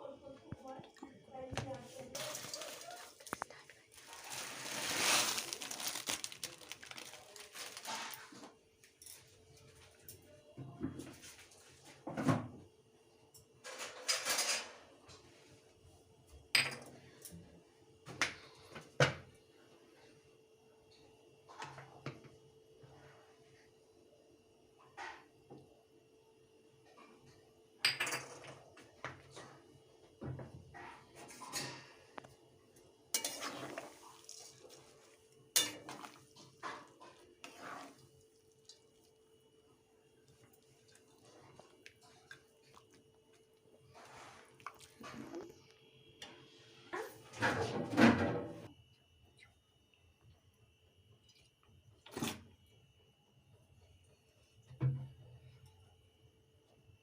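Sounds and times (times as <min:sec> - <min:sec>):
scraping rustling sound: 0:04.0 - 0:08.6, 0:33.2 - 0:38.1
dishes and utensils clattering: 0:13.6 - 0:14.9, 0:30.8 - 0:32.1, 0:33.2 - 0:34.4, 0:35.6 - 0:38.0.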